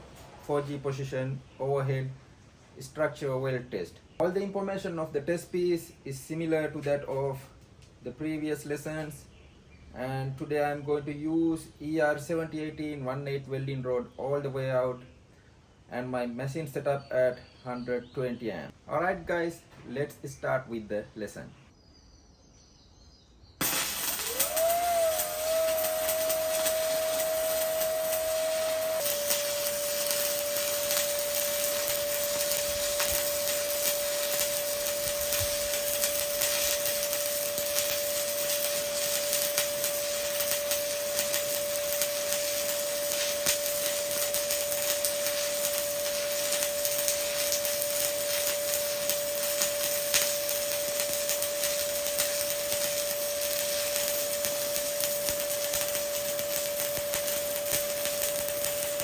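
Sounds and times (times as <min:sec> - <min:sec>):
welding arc crackling hiss: 0:23.6 - 0:59.0
steady tone: 0:24.0 - 0:59.0.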